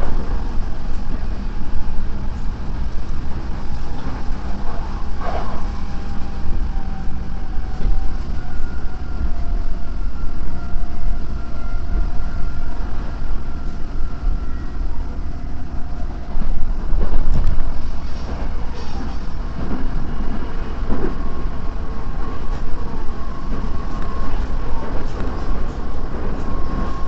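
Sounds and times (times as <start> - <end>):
electric train rumbling: 0.0 - 27.0.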